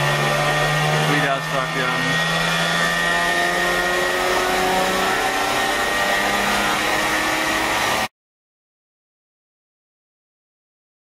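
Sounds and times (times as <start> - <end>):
car engine at full throttle: 0.0 - 8.1.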